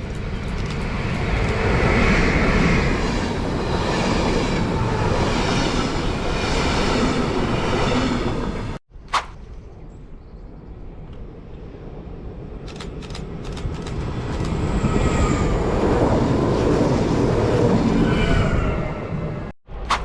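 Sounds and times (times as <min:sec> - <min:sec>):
train rumbling: 0:00.0 - 0:08.8, 0:10.9 - 0:19.9
sharp clicks: 0:12.6 - 0:14.6.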